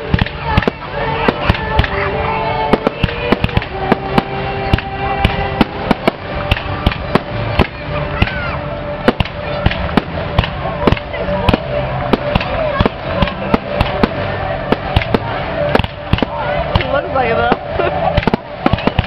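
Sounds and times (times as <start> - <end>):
firework shells bursting: 9.0 - 19.0.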